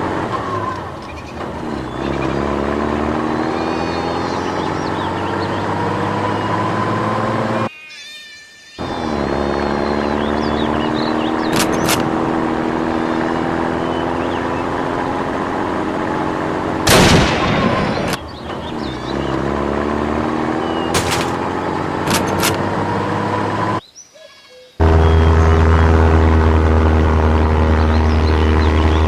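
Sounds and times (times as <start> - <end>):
vehicle engine running: 0.0 - 7.7, 8.8 - 23.8, 24.8 - 29.0
gunshots: 21.0 - 21.5.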